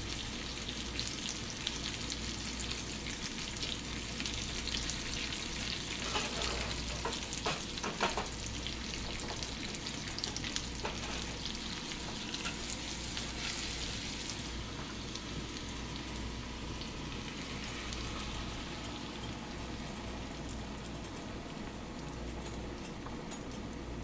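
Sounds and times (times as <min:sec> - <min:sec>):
bacon sizzling in a frying pan: 0:00.0 - 0:24.0
spatula scraping a pan: 0:06.0 - 0:06.9, 0:13.3 - 0:13.8.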